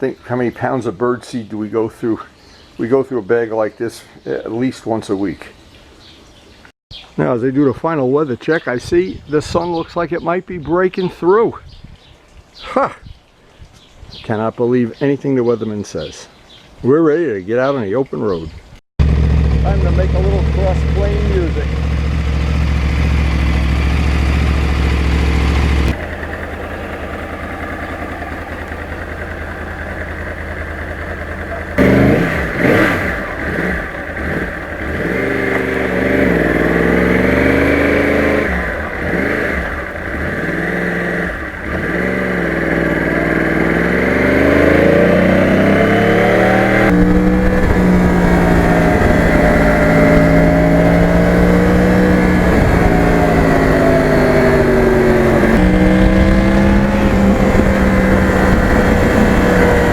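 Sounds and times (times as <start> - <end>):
motorcycle engine revving: 19.0 - 59.9.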